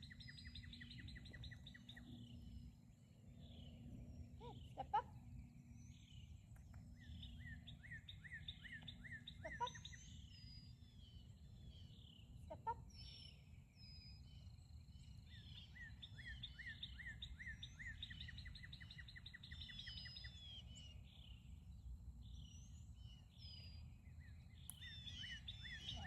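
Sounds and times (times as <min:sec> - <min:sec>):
other birds calling: 0:07.0 - 0:10.4, 0:24.7 - 0:26.0.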